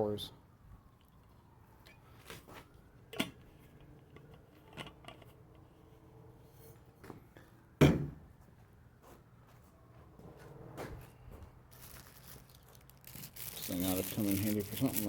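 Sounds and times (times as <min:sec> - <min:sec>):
loud knock: 0:07.8 - 0:08.2.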